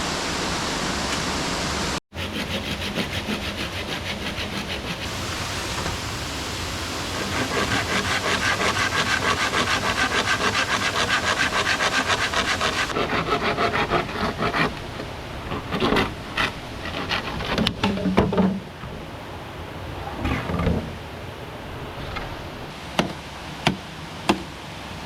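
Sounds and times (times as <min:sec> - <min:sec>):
saw cutting through bamboo: 0:02.1 - 0:17.7.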